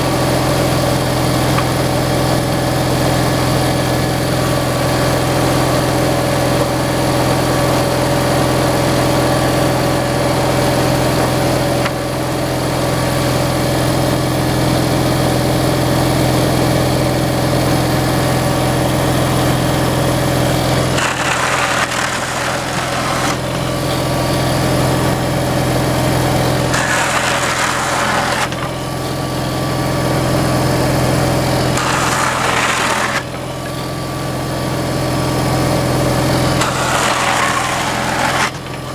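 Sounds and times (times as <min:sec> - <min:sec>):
machine engine running: 0:18.4 - 0:38.9.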